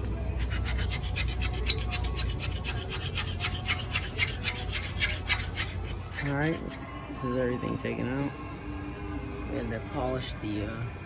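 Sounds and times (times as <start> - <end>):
abrasive rubbing on metal: 0.1 - 6.9.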